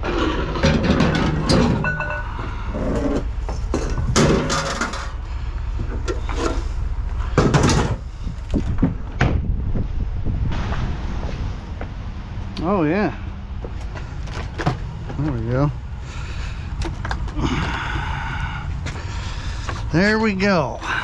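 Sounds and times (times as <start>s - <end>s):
scrap clattering and knocking: 0.0s - 5.2s, 5.8s - 9.4s, 13.6s - 15.3s
steady low rumble: 0.0s - 21.0s.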